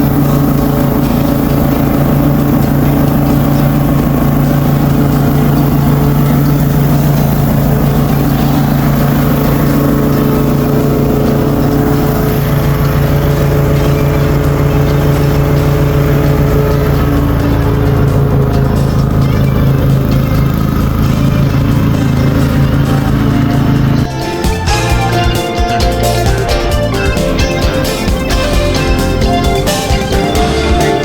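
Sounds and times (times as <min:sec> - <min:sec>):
ride-on mower engine running: 0:00.0 - 0:31.0.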